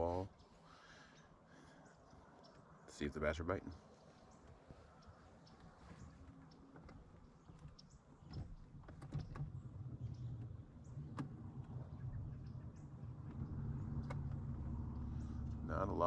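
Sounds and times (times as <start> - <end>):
low motor hum: 3.7 - 16.0
light clicks: 4.4 - 15.6.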